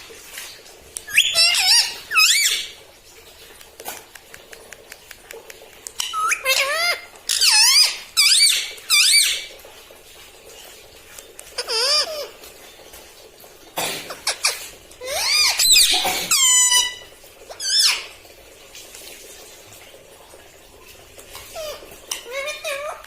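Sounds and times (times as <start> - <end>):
parakeet shrill squeaky calls: 1.1 - 2.7, 6.0 - 9.5, 11.6 - 12.3, 14.2 - 17.0, 17.6 - 18.1, 21.6 - 23.0.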